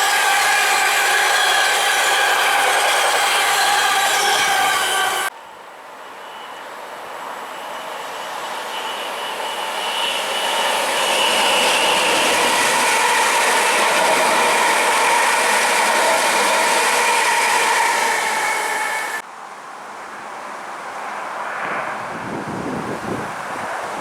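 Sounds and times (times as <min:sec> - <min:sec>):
train passing: 0:00.0 - 0:19.2
faint high ringing tone: 0:00.1 - 0:19.2.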